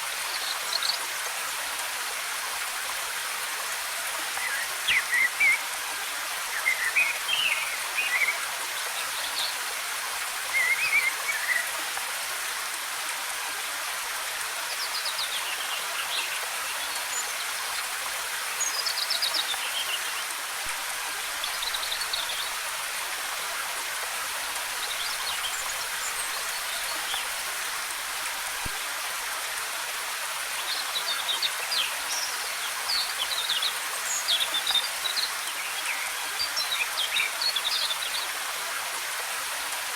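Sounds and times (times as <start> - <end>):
forest birds singing: 6.5 - 9.6, 10.5 - 11.8, 24.6 - 28.0.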